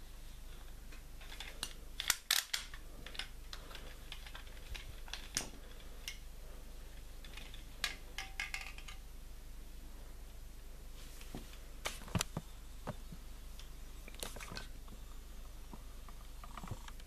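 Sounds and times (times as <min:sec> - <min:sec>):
plastic toy pieces clicking: 0:01.2 - 0:06.2, 0:07.2 - 0:09.0.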